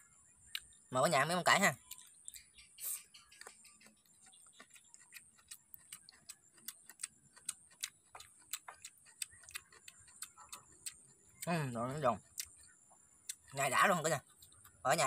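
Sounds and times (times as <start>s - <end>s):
person chewing crunchy food: 2.9s - 14.8s.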